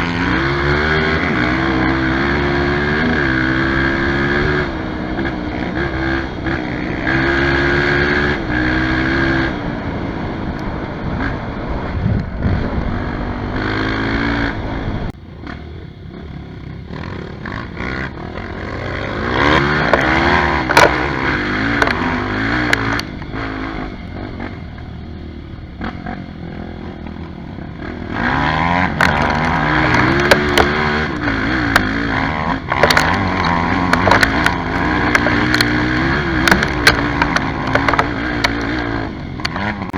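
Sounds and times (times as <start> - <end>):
motorcycle engine revving: 0.0 - 39.9
sharp clicks and knocks: 19.1 - 23.5, 28.8 - 39.9.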